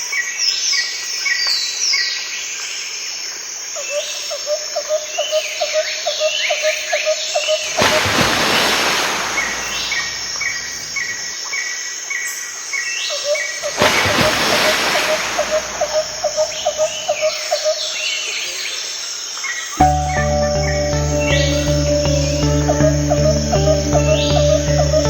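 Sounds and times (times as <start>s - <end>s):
birds chirping and calling: 13.6s - 17.6s.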